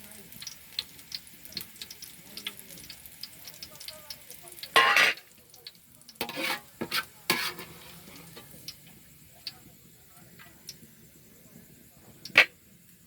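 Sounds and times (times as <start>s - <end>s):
onions sizzling in oil: 0.0s - 13.0s
spoon scraping a pan: 4.7s - 5.3s, 6.2s - 8.8s, 12.3s - 12.6s.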